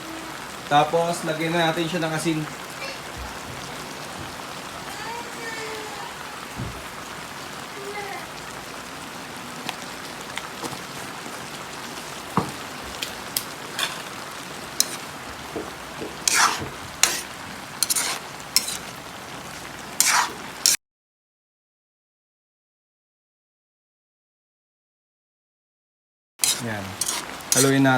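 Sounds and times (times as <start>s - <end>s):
vegetables sizzling in a pan: 0.0s - 20.8s, 26.4s - 27.9s
utensil scraping a pan: 13.6s - 19.0s, 20.0s - 20.8s, 26.4s - 27.9s.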